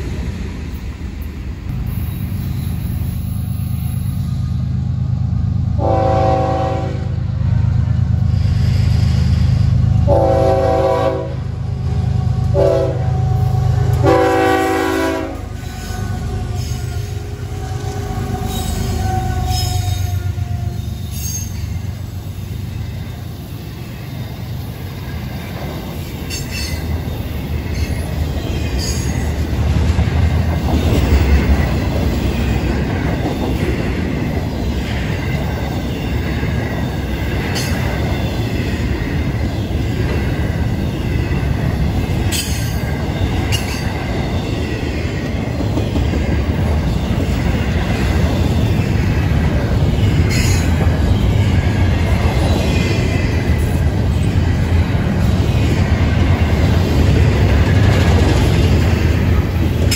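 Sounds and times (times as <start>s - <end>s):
freight cars rumbling: 0.0s - 59.9s
train horn: 5.8s - 7.2s, 10.0s - 20.9s.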